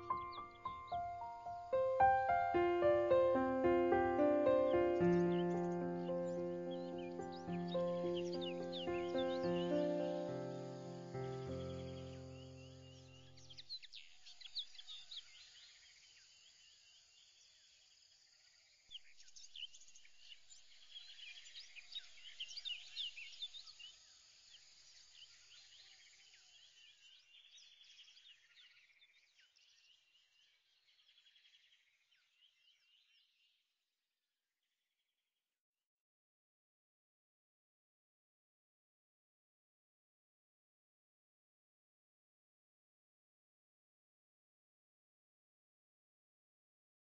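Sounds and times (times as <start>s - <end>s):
faint chorus of birds chirping: 0.0s - 33.8s.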